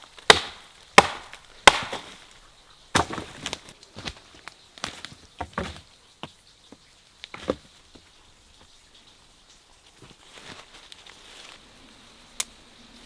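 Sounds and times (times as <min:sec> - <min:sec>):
rustling: 0:00.0 - 0:12.5
wood and stone knocking: 0:02.9 - 0:08.1.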